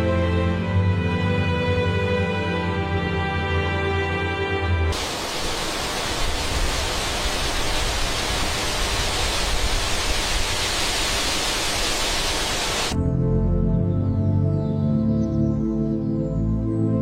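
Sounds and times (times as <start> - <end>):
loud steady rushing noise: 4.9 - 13.0.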